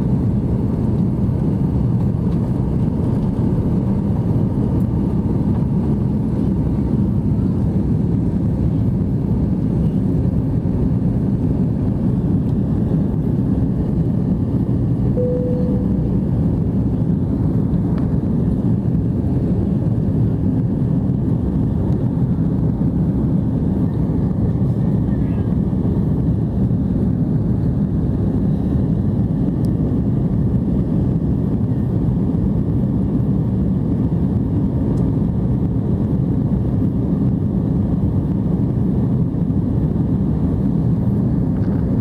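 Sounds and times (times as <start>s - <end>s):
airplane cabin engine rumble: 0.0s - 42.0s
short tone: 15.2s - 16.4s.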